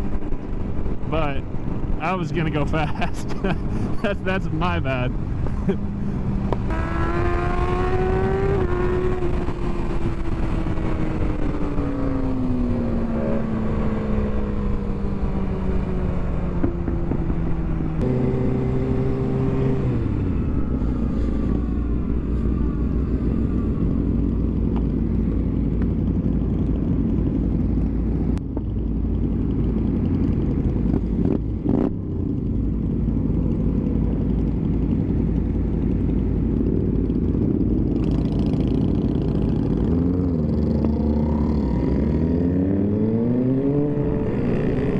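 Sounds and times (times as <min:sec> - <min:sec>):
motorcycle engine: 0:00.0 - 0:44.9.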